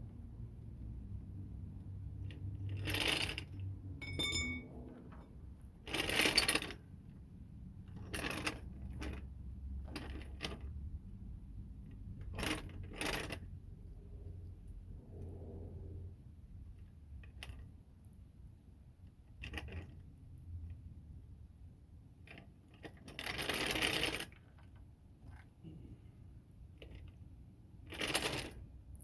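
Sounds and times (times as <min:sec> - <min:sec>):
low steady hum: 0:00.0 - 0:19.1
bright metallic ring: 0:04.0 - 0:04.8
metal tools clanking and scraping: 0:04.0 - 0:05.4.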